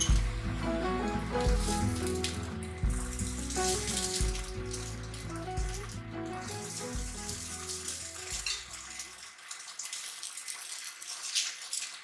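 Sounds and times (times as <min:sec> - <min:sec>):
soft background music: 0:00.0 - 0:09.3
meatballs sizzling in a pan: 0:00.0 - 0:12.0.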